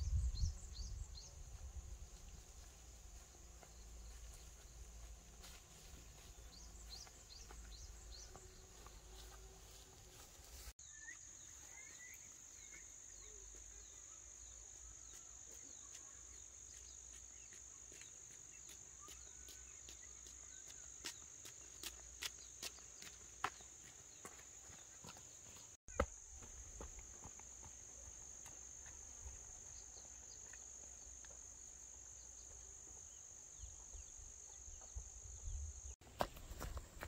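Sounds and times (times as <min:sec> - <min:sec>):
bird chirps: 0:10.8 - 0:21.3
insects droning: 0:20.5 - 0:37.0.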